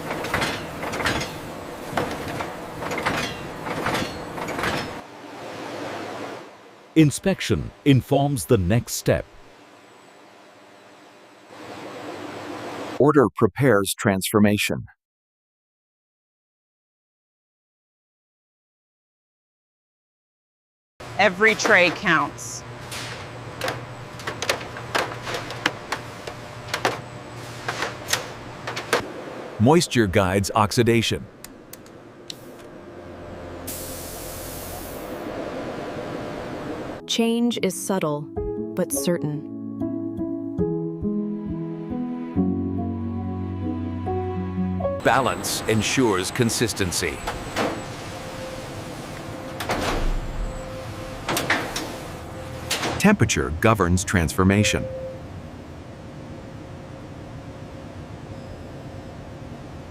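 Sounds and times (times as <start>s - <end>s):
machinery clicking and clacking: 0.0s - 5.0s
factory machinery humming: 0.0s - 13.2s, 21.0s - 37.1s, 42.9s - 59.9s
hiss: 33.7s - 35.1s.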